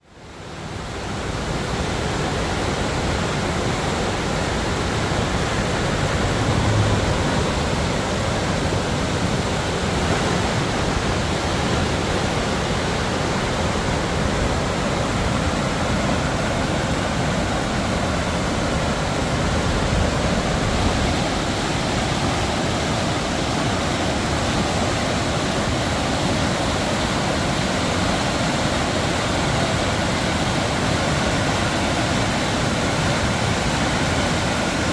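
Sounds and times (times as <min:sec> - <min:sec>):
river rushing through rapids: 0:00.0 - 0:34.9.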